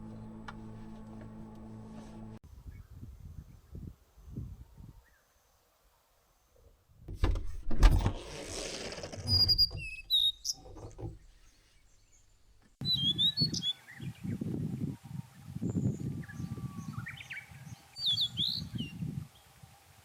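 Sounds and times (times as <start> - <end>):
small birds chirping: 9.3 - 14.4.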